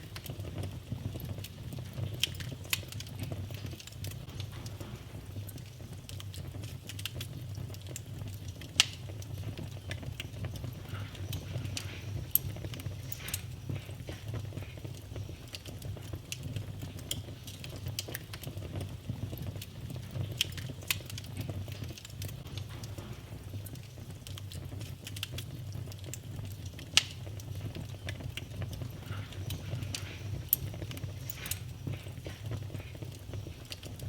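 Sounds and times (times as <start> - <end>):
wood fire crackling: 0.0 - 34.0
low hum: 4.2 - 6.1.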